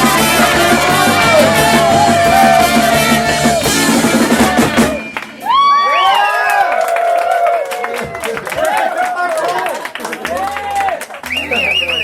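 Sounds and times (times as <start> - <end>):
person singing: 0.0 - 5.0
drum kit: 0.0 - 5.7
guitar: 0.0 - 5.7.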